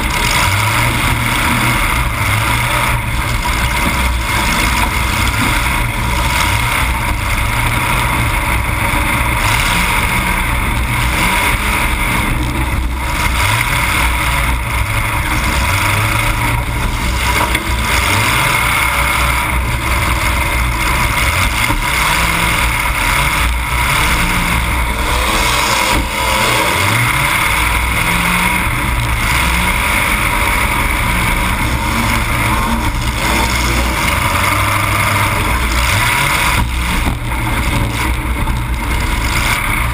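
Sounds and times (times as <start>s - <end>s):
car engine revving loudly: 0.0s - 39.9s.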